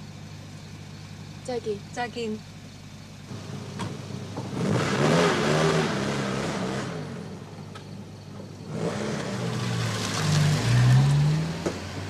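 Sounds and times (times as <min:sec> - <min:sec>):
car engine revving: 0:03.2 - 0:12.0.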